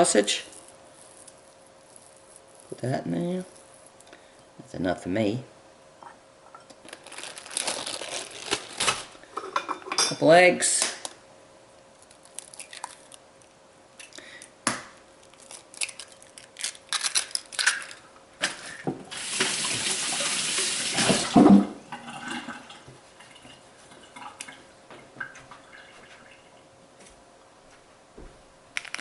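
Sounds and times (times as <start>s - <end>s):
eggs cracking against glass bowl: 12.0s - 13.2s
kitchen tap running: 19.1s - 21.6s.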